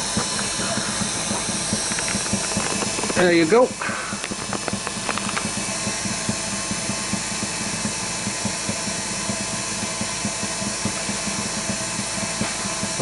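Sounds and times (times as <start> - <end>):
wood lathe humming: 0.0 - 6.0.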